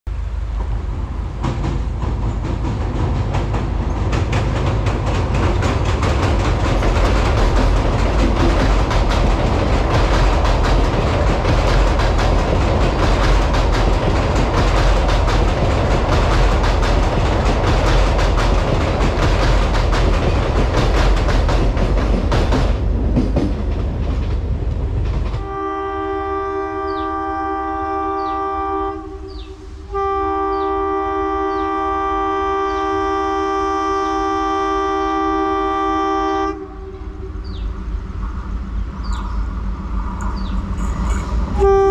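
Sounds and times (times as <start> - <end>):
heavy rumble of train on bridge: 0.1 - 41.9
wheels clattering over rail joints: 0.6 - 25.7.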